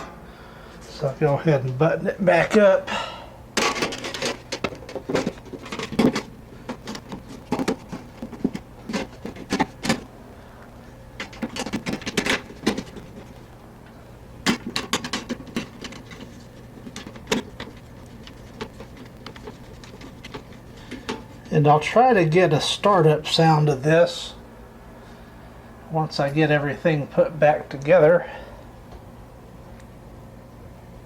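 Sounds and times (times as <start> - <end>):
steady low hum: 0.0 - 31.0
panel clicks and knocks: 3.6 - 10.1, 11.2 - 13.3, 14.4 - 21.3.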